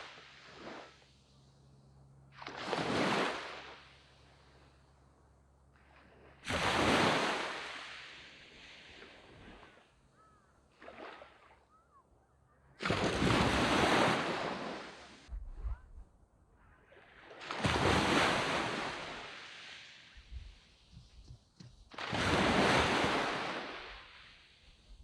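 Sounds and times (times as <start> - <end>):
waves breaking on beach: 0.0 - 11.9, 12.8 - 15.3, 16.8 - 25.0.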